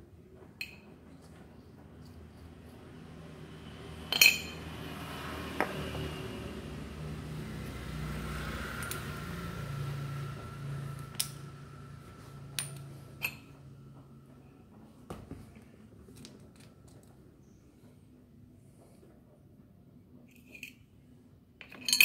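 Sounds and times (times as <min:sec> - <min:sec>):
metal parts clinking: 0:04.1 - 0:04.6, 0:21.6 - 0:22.0.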